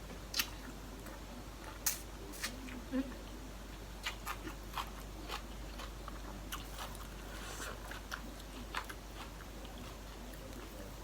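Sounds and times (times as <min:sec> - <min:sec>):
person chewing crunchy food: 0:04.0 - 0:11.0.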